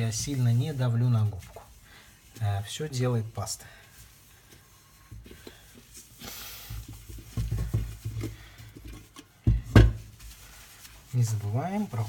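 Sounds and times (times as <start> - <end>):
sponge rubbing on metal: 0.0 - 8.1, 10.0 - 12.0
soft bumps of kettle: 6.7 - 10.4.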